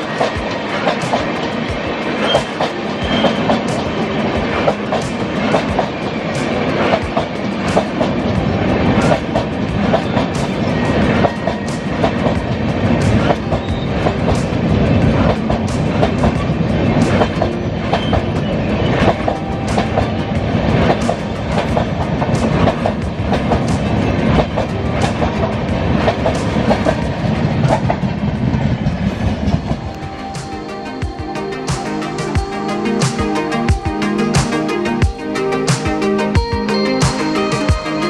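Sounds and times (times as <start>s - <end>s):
wheels clacking over rail joints: 0.0s - 33.3s
train rumbling along track: 0.0s - 38.0s.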